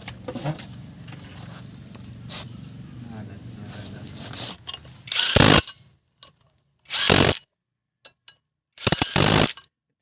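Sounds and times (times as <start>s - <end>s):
power tool driving bolts: 5.0s - 5.9s, 6.8s - 7.5s, 8.8s - 9.7s.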